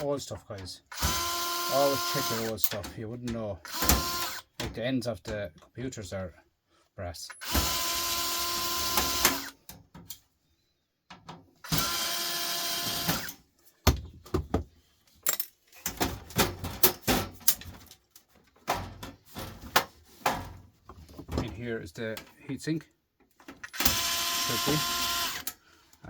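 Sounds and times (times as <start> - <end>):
cordless drill running: 0.9 - 2.5, 3.7 - 4.4, 7.4 - 9.6, 11.6 - 13.3, 23.7 - 25.6
metal parts clicking and clattering: 15.1 - 19.6.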